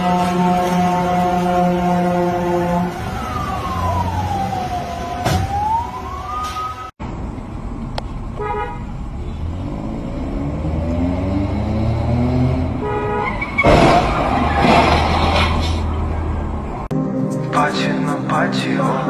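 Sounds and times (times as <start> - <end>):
horn toot: 0.0 - 3.0, 12.8 - 13.9
siren wailing: 0.7 - 6.9
vehicle engine accelerating: 9.4 - 12.8.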